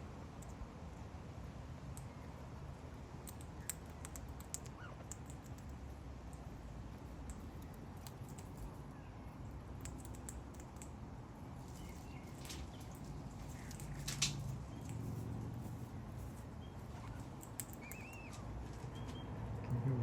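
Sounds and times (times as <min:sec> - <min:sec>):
faint high squeaks: 0:16.6 - 0:20.0.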